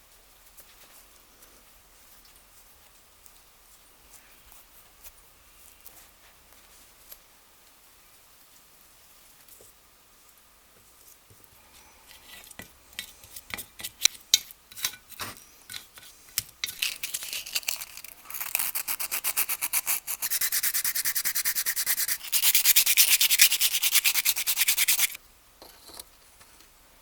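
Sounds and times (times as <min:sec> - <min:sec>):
abrasive rubbing on metal: 0:16.8 - 0:25.2.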